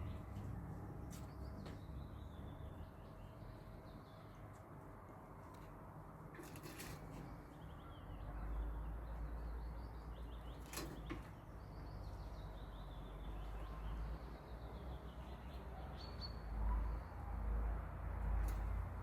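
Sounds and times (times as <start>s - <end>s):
faint high bird chirps: 7.3s - 17.3s.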